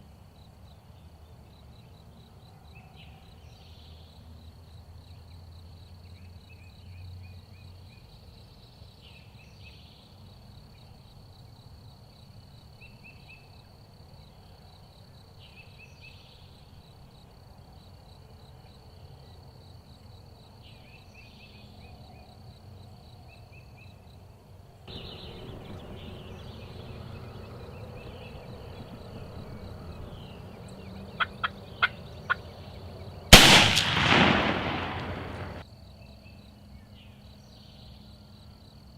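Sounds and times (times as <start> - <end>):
high insect trill: 3.2 - 38.9
turkey gobbling: 31.2 - 32.4
shotgun shot: 33.3 - 35.6
sharp clicks: 33.4 - 35.6.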